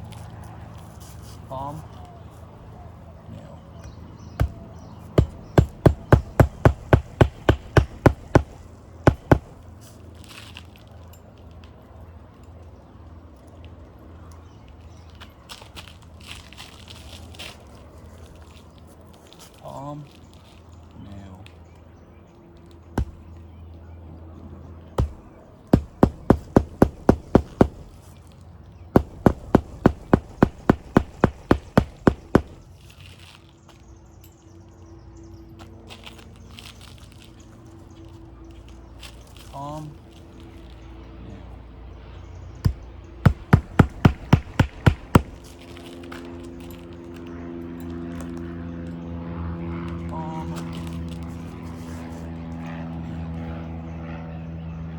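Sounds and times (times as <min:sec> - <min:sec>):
hammer striking a nail: 0:04.4 - 0:09.6, 0:23.0 - 0:23.4, 0:25.0 - 0:28.1, 0:29.0 - 0:32.7, 0:42.7 - 0:45.5.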